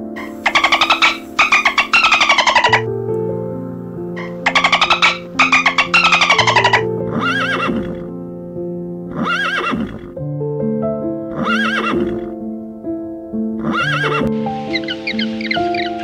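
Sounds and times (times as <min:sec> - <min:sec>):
soft piano music: 0:00.0 - 0:16.0
dolphin pulsed calls: 0:00.2 - 0:02.8, 0:04.2 - 0:08.0, 0:14.0 - 0:16.0
horse whinnying: 0:00.2 - 0:02.8, 0:04.2 - 0:08.1, 0:09.1 - 0:10.2, 0:11.3 - 0:12.3, 0:13.6 - 0:16.0.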